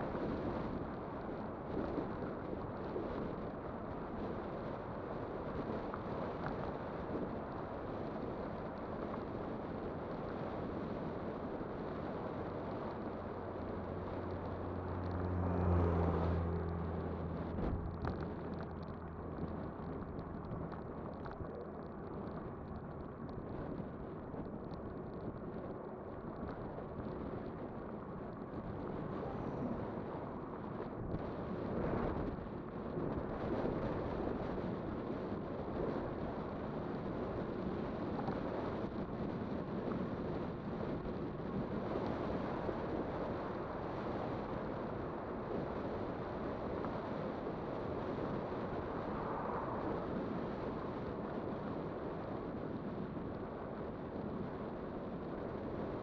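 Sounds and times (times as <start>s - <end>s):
road noise: 0.0s - 56.0s
wind rushing over microphone: 0.0s - 56.0s
passing vehicle engine hum: 11.6s - 22.7s, 26.6s - 32.8s, 43.0s - 51.5s.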